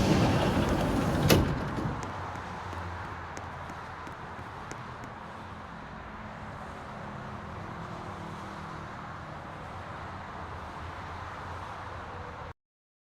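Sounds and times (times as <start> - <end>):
metro train rumbling: 0.0 - 5.4.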